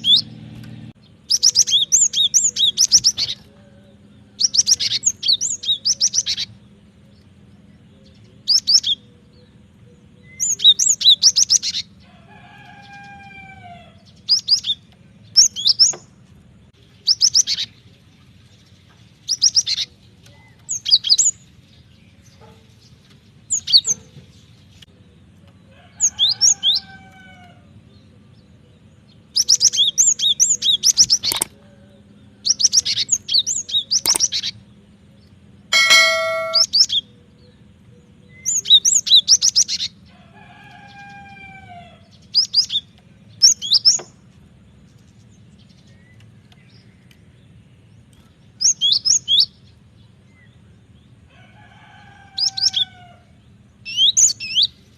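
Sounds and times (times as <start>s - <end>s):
bird chirping rapidly: 35.7s - 36.9s.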